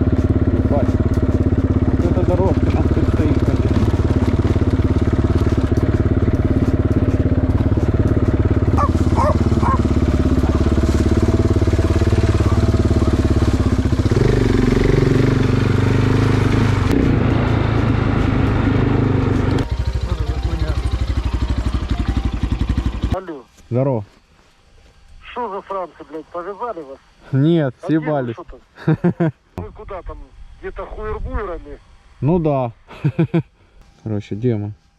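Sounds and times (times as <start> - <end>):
motorcycle engine running: 0.0 - 23.5.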